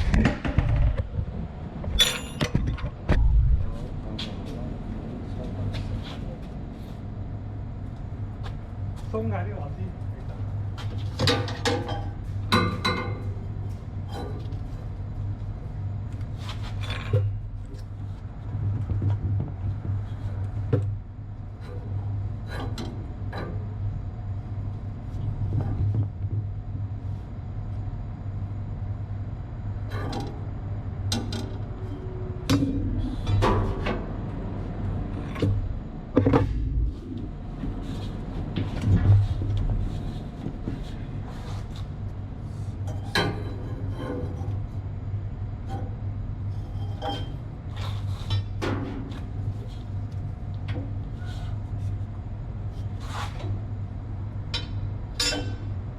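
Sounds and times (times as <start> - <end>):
low machinery hum: 0.0 - 55.9
metal tools clinking on steel: 2.0 - 2.5.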